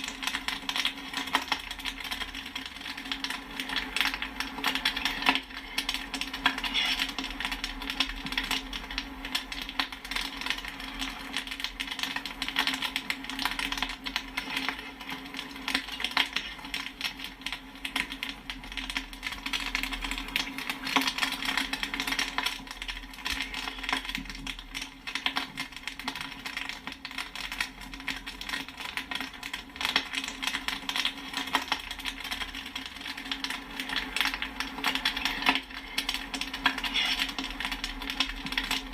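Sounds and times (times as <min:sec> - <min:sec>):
popcorn popping: 0:00.0 - 0:38.9.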